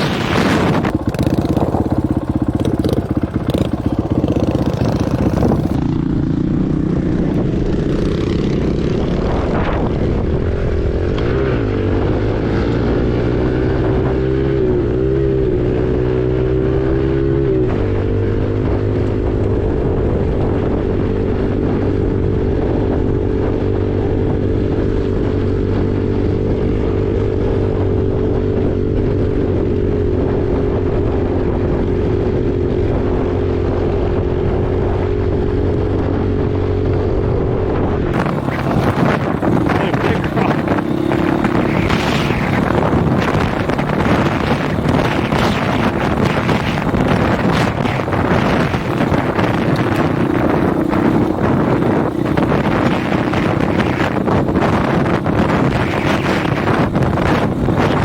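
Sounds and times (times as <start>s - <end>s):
dirt bike engine running: 0.0s - 58.0s
wind buffeting microphone: 0.0s - 58.0s.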